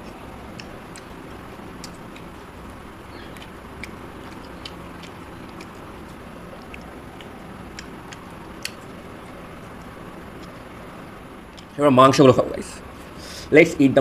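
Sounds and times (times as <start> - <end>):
chewing: 0.0 - 10.7
steady background hiss: 0.0 - 14.0
wet mouth clicks and smacks: 0.5 - 2.4, 3.2 - 10.6.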